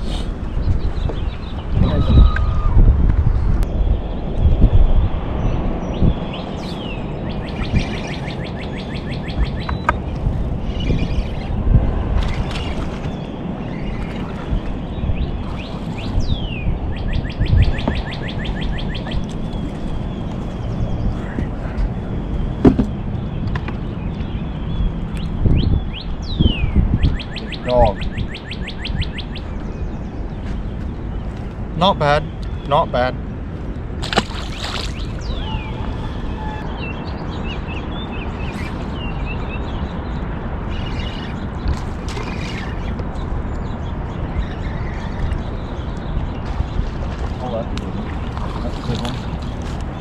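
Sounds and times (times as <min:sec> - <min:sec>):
steady low rumble: 0:00.0 - 0:50.0
small birds chirping: 0:05.5 - 0:11.6, 0:12.2 - 0:50.0
bird singing whistle and trill: 0:35.0 - 0:39.7.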